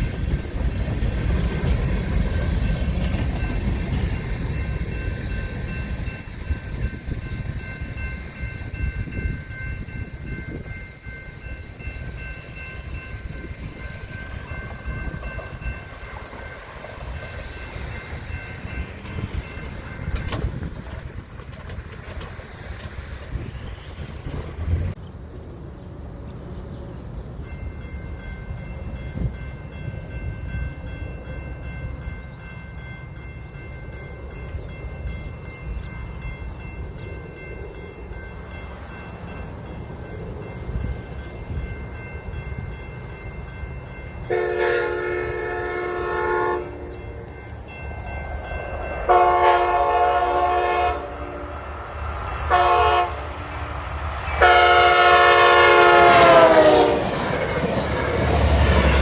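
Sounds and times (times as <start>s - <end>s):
train rumbling: 0.0s - 59.0s
locomotive horn blasts: 44.3s - 47.3s, 49.1s - 51.6s, 52.5s - 53.6s, 54.3s - 57.2s.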